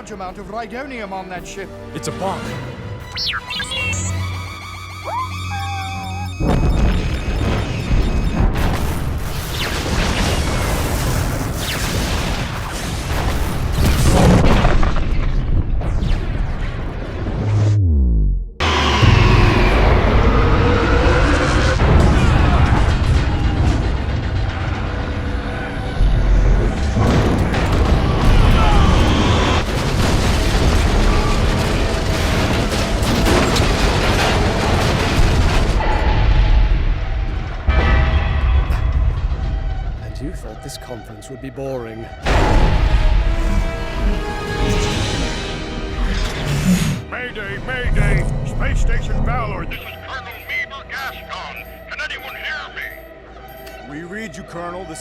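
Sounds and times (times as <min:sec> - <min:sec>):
huge rumbling explosion: 0:18.6 - 0:40.4.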